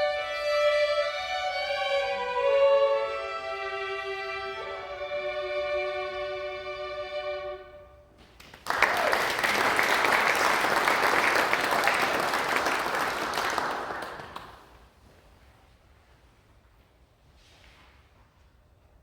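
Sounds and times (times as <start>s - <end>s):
violins holding chord: 0.0s - 8.1s
audience applauding: 8.4s - 14.8s.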